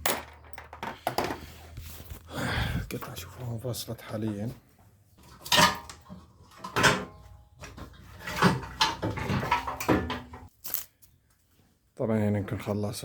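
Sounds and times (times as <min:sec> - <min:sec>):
car body parts knocking and clattering: 0:00.0 - 0:01.5.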